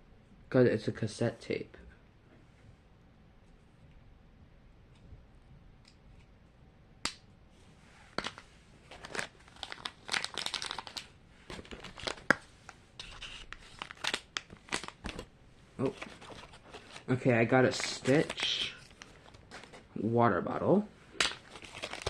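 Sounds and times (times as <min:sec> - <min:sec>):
plastic wrapper tearing and crinkling: 0:08.2 - 0:12.4, 0:13.0 - 0:19.8, 0:21.2 - 0:22.0.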